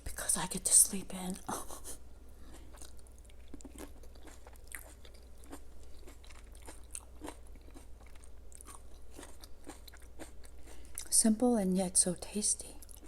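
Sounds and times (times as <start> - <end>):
chewing crunchy sandwich: 2.5 - 11.1, 12.8 - 13.0.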